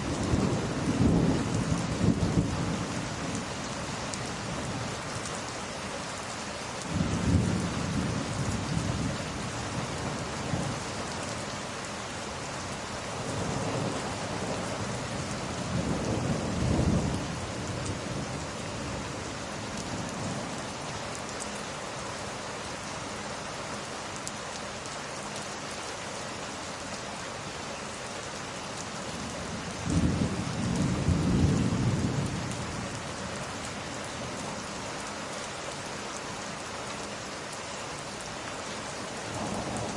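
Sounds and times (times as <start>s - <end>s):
heavy rain: 0.0s - 39.9s
rolling thunder: 29.6s - 32.9s.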